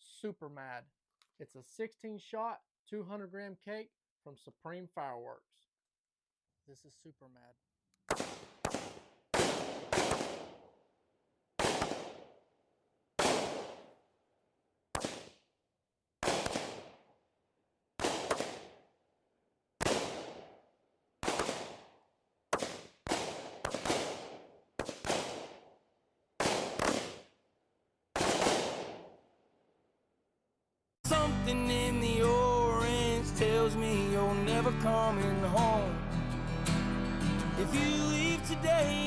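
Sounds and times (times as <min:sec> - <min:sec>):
firework cake bangs: 0:08.1 - 0:10.6, 0:11.6 - 0:12.2, 0:13.2 - 0:13.9, 0:15.0 - 0:15.4, 0:16.2 - 0:16.9, 0:18.0 - 0:18.7, 0:19.8 - 0:20.5, 0:21.2 - 0:21.8, 0:26.4 - 0:27.3, 0:28.2 - 0:29.0.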